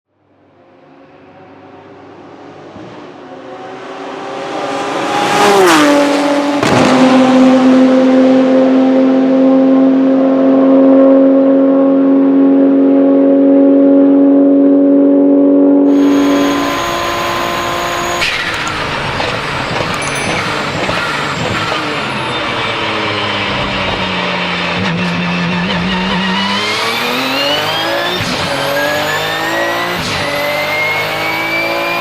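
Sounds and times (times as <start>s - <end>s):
racing engine: 0.1s - 32.0s.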